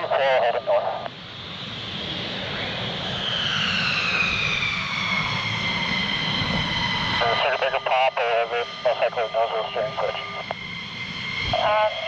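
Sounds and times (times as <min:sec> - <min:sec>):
jet engine whine: 0:00.0 - 0:12.0.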